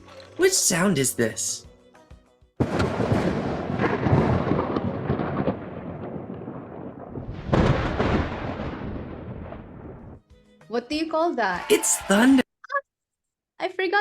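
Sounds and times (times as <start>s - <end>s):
thunder clap rumbling: 2.6s - 10.2s.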